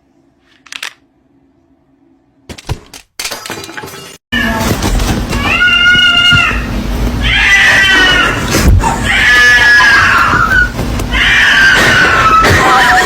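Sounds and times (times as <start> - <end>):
cat screaming: 5.3 - 13.0.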